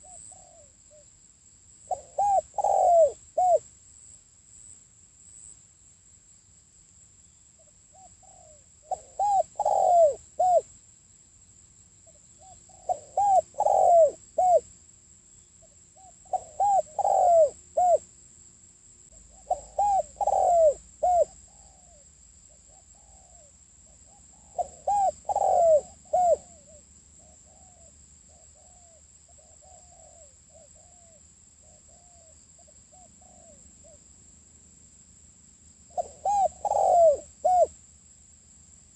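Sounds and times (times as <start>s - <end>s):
dove cooing: 0.0s - 1.0s, 1.9s - 3.6s, 8.0s - 10.7s, 12.1s - 14.7s, 16.0s - 18.1s, 19.2s - 22.0s, 22.6s - 34.0s, 35.9s - 37.7s.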